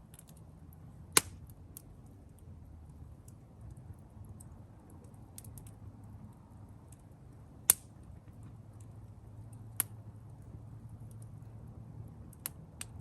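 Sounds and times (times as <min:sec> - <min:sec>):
campfire crackling: 0:00.0 - 0:13.0
fire ticks: 0:00.1 - 0:13.0
sharp pops of fire: 0:01.1 - 0:01.9, 0:07.6 - 0:08.9, 0:12.3 - 0:13.0.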